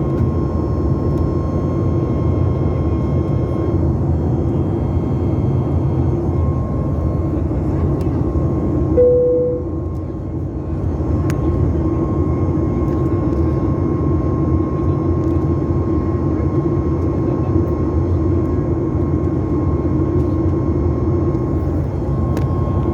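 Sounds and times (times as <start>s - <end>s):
faint steady whine: 0.0s - 12.6s
jet cabin low rumble: 0.0s - 22.9s
short clear tone: 9.0s - 9.9s.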